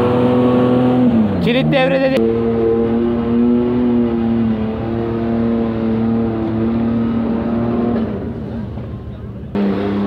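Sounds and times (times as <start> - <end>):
engine at high revs: 0.0 - 8.9, 9.5 - 10.0.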